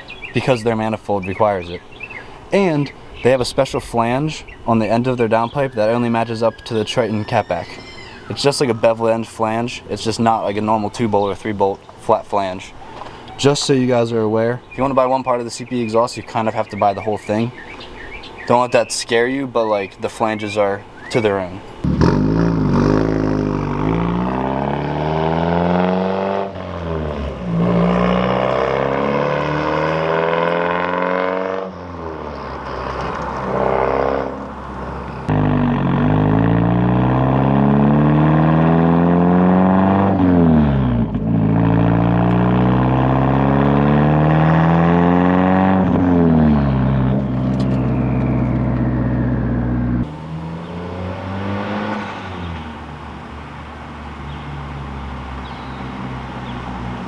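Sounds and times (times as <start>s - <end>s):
turbocharged car engine accelerating: 21.8s - 57.0s.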